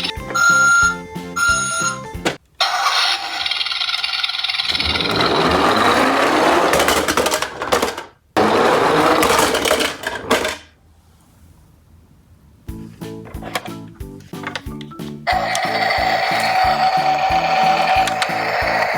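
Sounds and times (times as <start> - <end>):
toy cars rattling down track: 2.6 - 10.7, 15.3 - 18.9.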